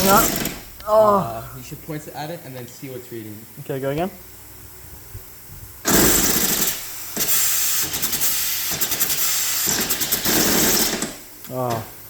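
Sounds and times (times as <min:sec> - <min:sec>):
compressed air hissing: 0:00.0 - 0:02.0, 0:04.2 - 0:11.4.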